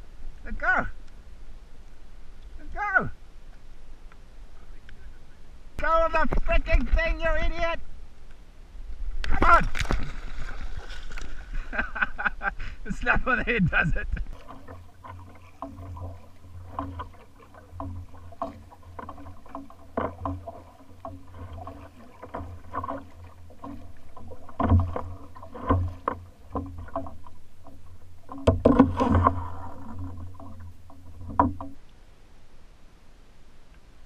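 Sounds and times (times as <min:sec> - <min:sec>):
water splashes: 0:09.2 - 0:12.1, 0:13.0 - 0:31.9
knocks against kayak hull: 0:14.2 - 0:31.8.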